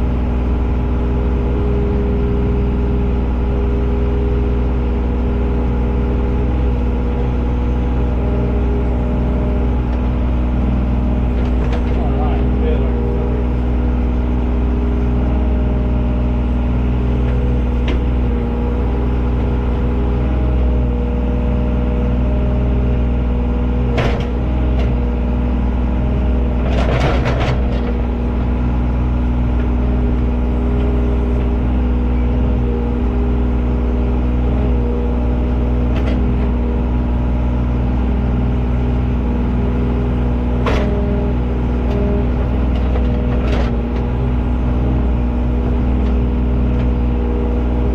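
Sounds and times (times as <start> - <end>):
heavy machine engine running: 0.0 - 47.9
knocks and clanks: 11.3 - 12.3, 23.9 - 24.9, 26.6 - 28.0, 40.6 - 41.1.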